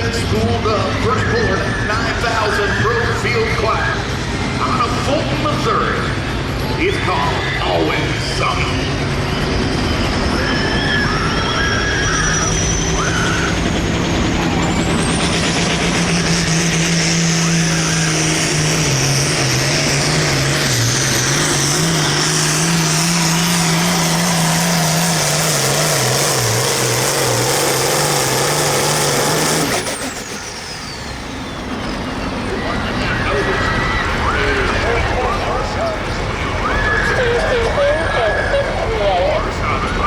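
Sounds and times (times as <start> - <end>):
diesel tractor engine at full throttle: 0.0 - 40.0
high turbo whine: 0.0 - 40.0.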